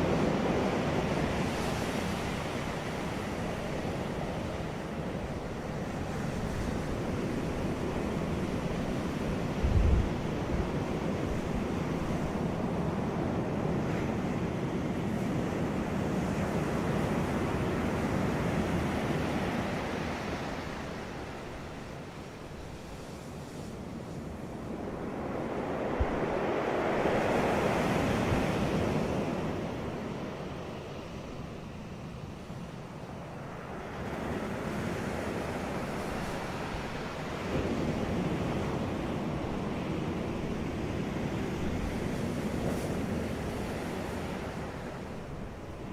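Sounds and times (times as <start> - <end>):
wind on microphone: 0.0 - 21.8, 23.5 - 30.4
sea surf washing on beach: 0.0 - 45.9.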